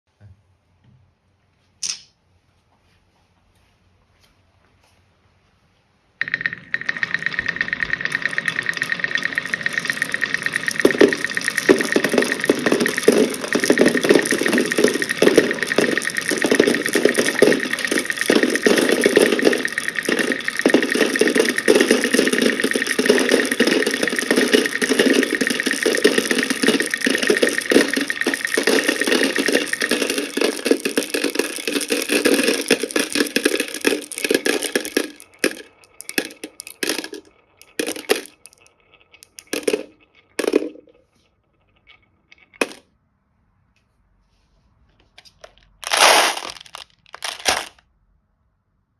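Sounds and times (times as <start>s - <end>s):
balls clattering down wooden track: 6.2s - 42.9s, 45.4s - 47.8s.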